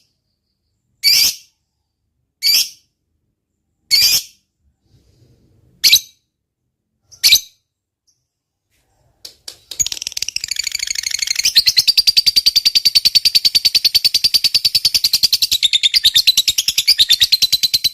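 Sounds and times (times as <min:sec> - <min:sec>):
bird rapid chattering trill: 0:09.7 - 0:17.9
bird sharp chirps: 0:09.7 - 0:17.9.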